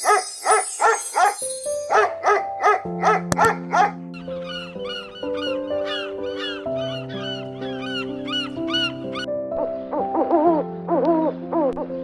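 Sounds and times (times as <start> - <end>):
dog barking: 0.0 - 4.0.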